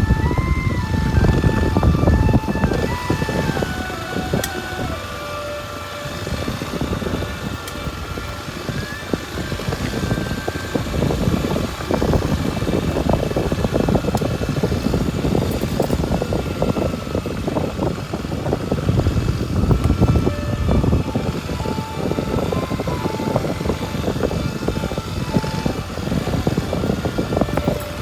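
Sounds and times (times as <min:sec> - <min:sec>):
faint gliding whine: 0:00.0 - 0:28.0
motorcycle engine running: 0:00.0 - 0:28.0.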